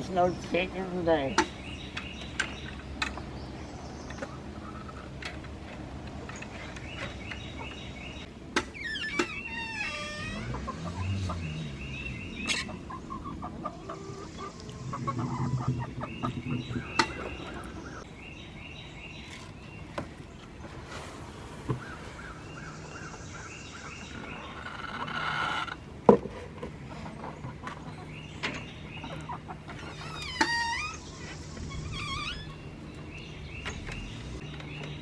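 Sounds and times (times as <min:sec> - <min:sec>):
hens clucking: 0:04.1 - 0:07.9, 0:10.5 - 0:18.1, 0:21.7 - 0:30.1.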